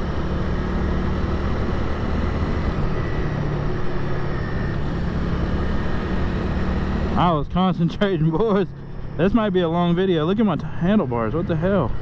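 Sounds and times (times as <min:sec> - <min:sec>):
motorcycle engine running: 0:00.0 - 0:02.8
wind and road noise: 0:00.0 - 0:12.0.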